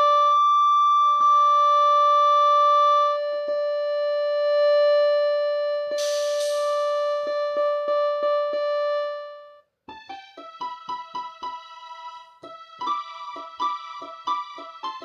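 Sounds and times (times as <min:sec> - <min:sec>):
rhythm pattern clicks: 0:09.9 - 0:15.0.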